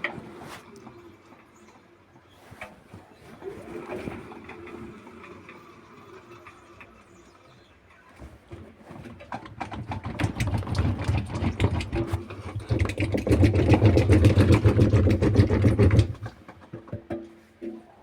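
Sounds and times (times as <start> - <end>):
washing machine rattling and knocking: 8.5 - 17.8.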